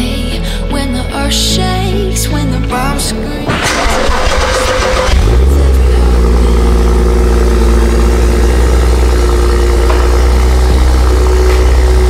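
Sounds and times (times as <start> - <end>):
car engine idling: 3.0 - 12.0.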